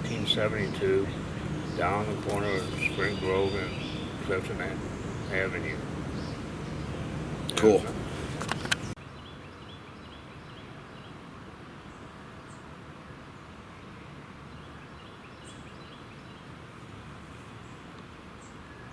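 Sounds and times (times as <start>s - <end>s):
small bird chirping: 0.0s - 7.6s
outdoor background noise: 0.0s - 18.9s.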